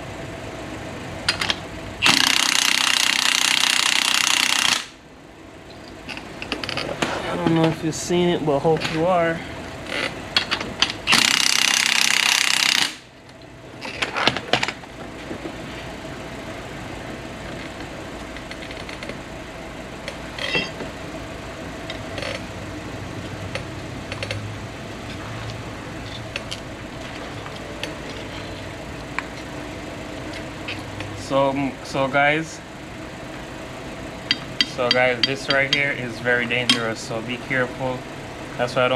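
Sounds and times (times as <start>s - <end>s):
impact wrench hammering: 1.3s - 5.0s, 10.4s - 13.1s, 34.3s - 35.9s
metal tools clinking: 20.4s - 20.8s, 34.3s - 37.0s.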